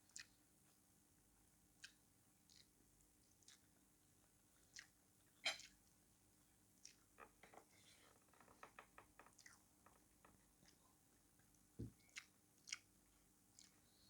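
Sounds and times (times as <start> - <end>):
person chewing: 1.8 - 2.7, 4.6 - 4.9, 5.5 - 5.8, 9.4 - 9.7, 12.0 - 12.9, 13.5 - 14.0
wet mouth clicks and smacks: 1.8 - 2.7, 3.4 - 3.6, 4.7 - 5.8, 6.8 - 7.0, 12.0 - 12.9, 13.6 - 13.8.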